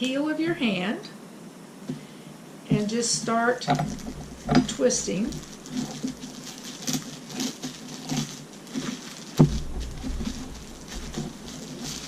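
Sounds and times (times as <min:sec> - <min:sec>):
crackers crunching in a bag: 0:03.7 - 0:12.0.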